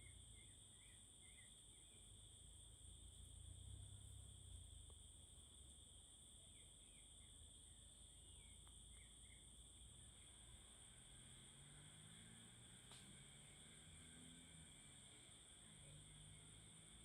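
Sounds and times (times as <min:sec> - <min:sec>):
insects trilling: 0:00.0 - 0:12.1.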